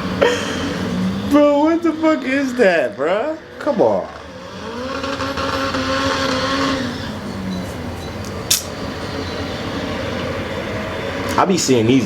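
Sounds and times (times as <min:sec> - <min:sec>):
racing car engine: 0:00.0 - 0:12.0
sharp click: 0:08.2 - 0:08.8.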